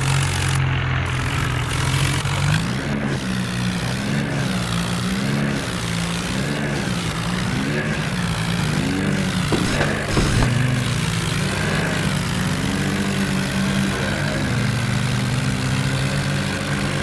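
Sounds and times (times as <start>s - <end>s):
tractor diesel engine under load: 0.0s - 17.0s
short thuds: 9.4s - 11.0s.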